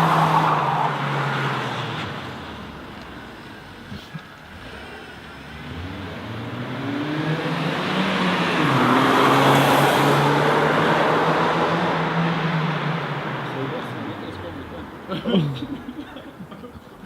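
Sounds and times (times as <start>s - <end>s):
car engine passing: 0.0s - 16.6s
tyre and road noise: 0.0s - 17.0s.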